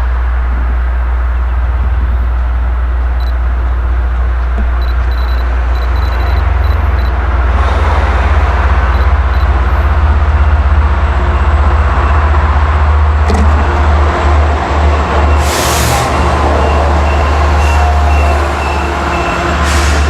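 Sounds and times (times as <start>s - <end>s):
diesel locomotive engine droning: 0.0s - 20.0s
loud train noise: 0.0s - 20.0s.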